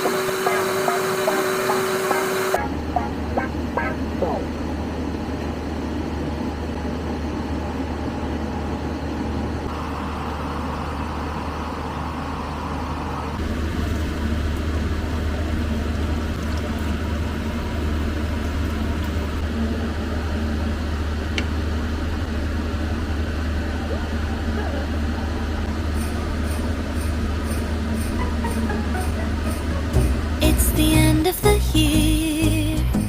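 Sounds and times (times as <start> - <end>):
low drone: 22.2 - 32.6.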